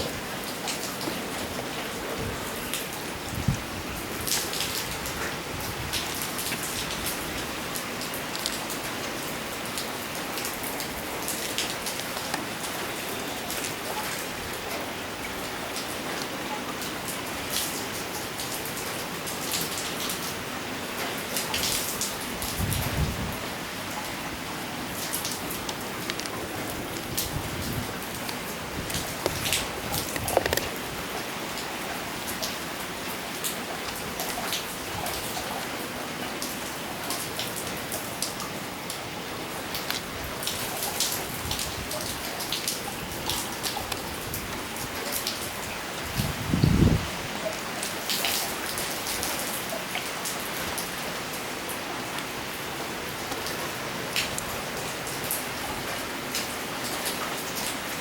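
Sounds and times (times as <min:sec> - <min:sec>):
rain pattering: 0:00.0 - 0:58.0
drips and ticks: 0:00.3 - 0:20.3, 0:24.9 - 0:32.6, 0:39.6 - 0:45.8
rain hissing: 0:21.1 - 0:31.9.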